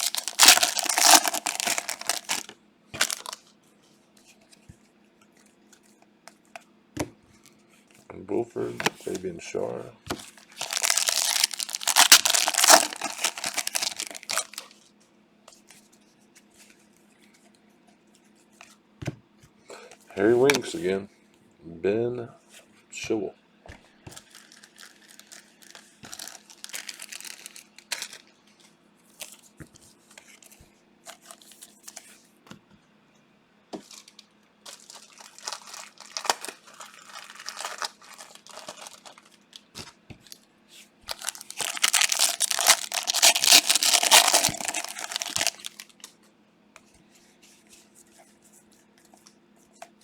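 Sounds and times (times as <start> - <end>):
card pack wrappers tearing and crinkling: 0.0 - 3.4, 10.1 - 14.9, 20.4 - 20.8, 24.2 - 28.3, 33.8 - 40.4, 41.1 - 46.1.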